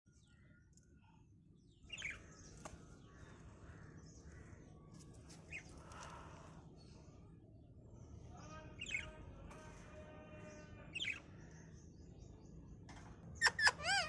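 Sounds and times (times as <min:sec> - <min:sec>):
parrot chirping calls: 0:13.4 - 0:14.0.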